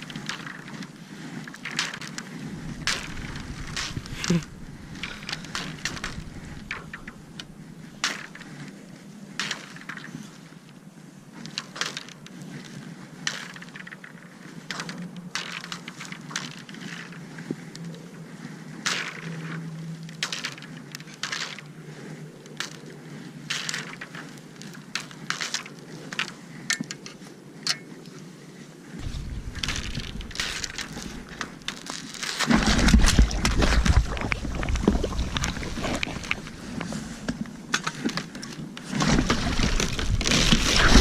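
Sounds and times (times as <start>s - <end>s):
wind rumbling on microphone: 0.0s - 41.0s
clicks and scrapes on ice: 11.4s - 17.9s, 20.2s - 21.7s, 22.4s - 28.2s, 29.6s - 41.0s.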